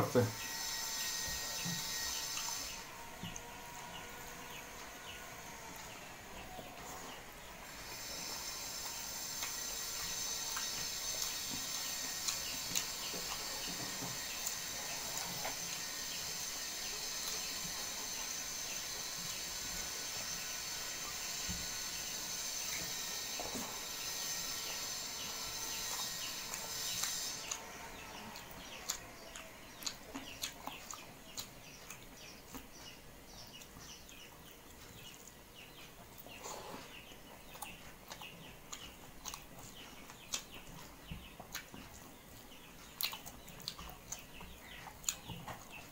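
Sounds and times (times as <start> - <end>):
wet chewing: 0.3 - 33.0, 33.6 - 45.9.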